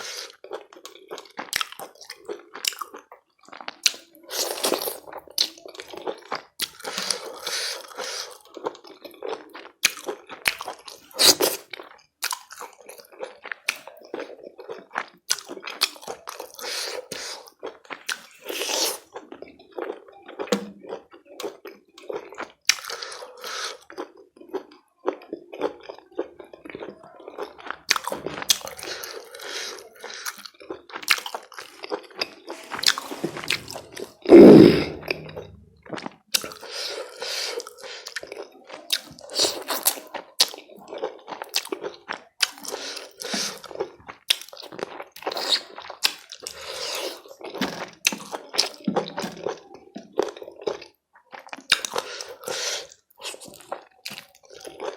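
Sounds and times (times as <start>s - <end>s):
chewing and wet mouth sounds: 0.0s - 54.9s
loud low sound: 32.8s - 35.7s.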